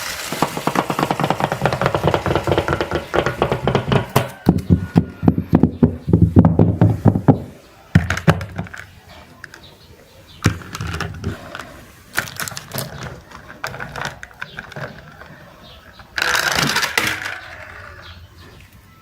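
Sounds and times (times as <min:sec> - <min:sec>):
rattling clatter: 0:00.0 - 0:04.7
objects knocking and clicking: 0:00.0 - 0:09.7, 0:10.4 - 0:17.6.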